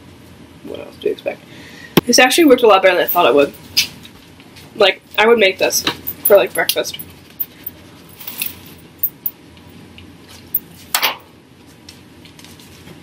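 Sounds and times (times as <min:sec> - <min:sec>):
small clicks and clinks: 0:06.0 - 0:09.4.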